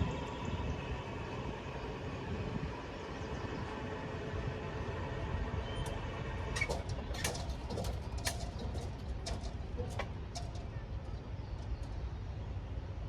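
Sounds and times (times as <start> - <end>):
moving train rumble: 0.0 - 13.0
sharp clicks and knocks: 6.6 - 12.0.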